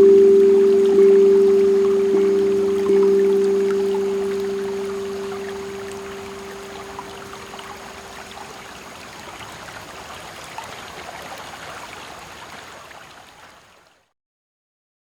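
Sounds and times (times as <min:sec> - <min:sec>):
steel tongue drum note ringing: 0:00.0 - 0:08.3
creek running over stones: 0:00.0 - 0:14.1.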